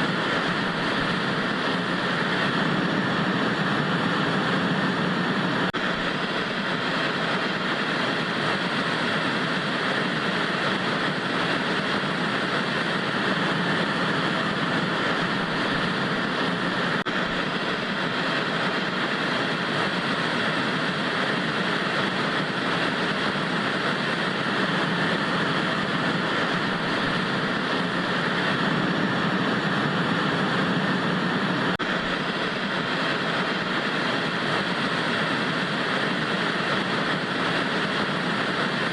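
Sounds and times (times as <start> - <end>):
tv static hiss: 0.0 - 38.9.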